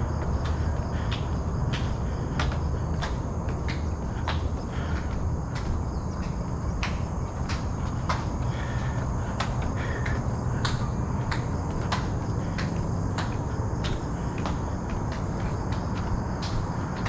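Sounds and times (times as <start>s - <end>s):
faint insect drone: 0.0s - 17.0s
steady low rumble: 0.0s - 17.0s
footsteps walking: 11.2s - 15.7s.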